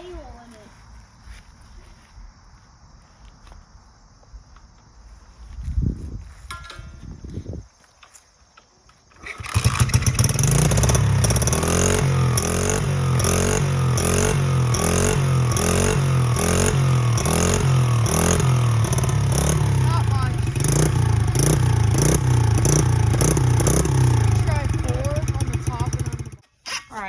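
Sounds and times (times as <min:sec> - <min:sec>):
pit bike engine running: 0:09.2 - 0:26.4.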